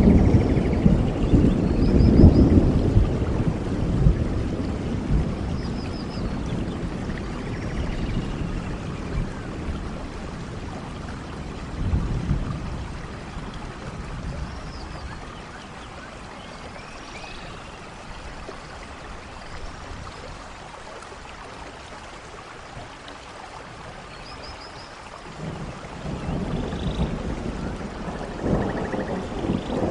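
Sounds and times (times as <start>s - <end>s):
low rolling thunder: 0.0s - 15.3s, 25.3s - 29.9s
steady rain in forest: 0.0s - 29.9s.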